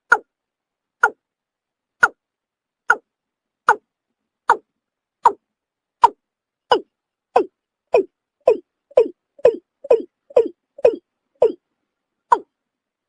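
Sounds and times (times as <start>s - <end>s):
watercock calling: 6.0s - 11.6s.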